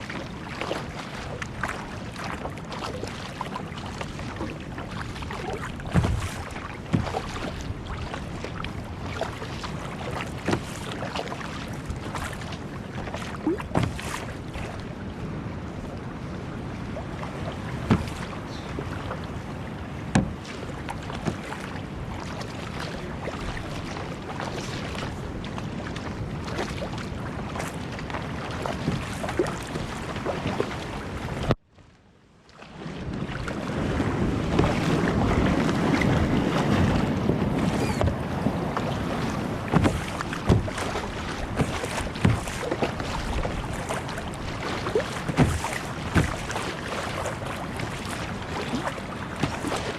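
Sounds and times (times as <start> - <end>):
water sloshing against hull: 0.0 - 49.9
knocks against hull: 4.3 - 8.3, 10.1 - 11.2, 13.0 - 14.4, 17.8 - 18.9, 20.1 - 21.7, 28.7 - 29.7, 34.5 - 38.3, 39.6 - 49.9
wind on microphone: 32.8 - 49.9.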